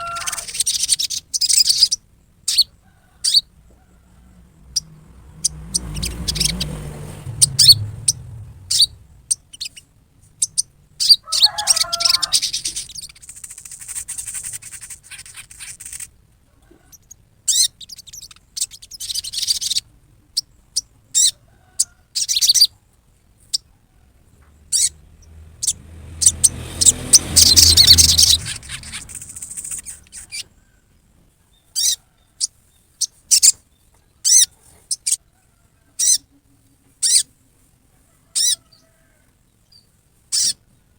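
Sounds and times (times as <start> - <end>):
bird giving harsh chatter: 0.0 - 2.7, 5.4 - 9.8, 10.4 - 16.2, 25.6 - 30.4.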